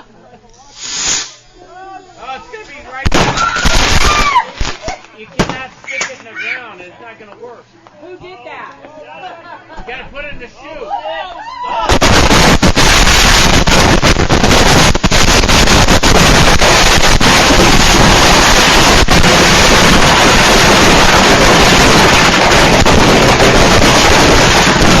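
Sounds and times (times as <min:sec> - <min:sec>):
fireworks hissing and crackling: 0:00.5 - 0:06.3, 0:11.8 - 0:25.0
fireworks sharp cracks: 0:02.9 - 0:06.2, 0:11.9 - 0:25.0.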